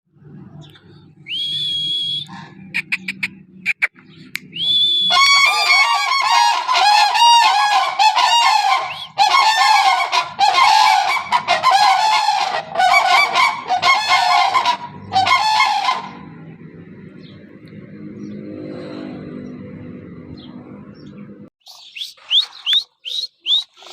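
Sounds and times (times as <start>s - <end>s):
cranes calling: 1.3s - 16.4s.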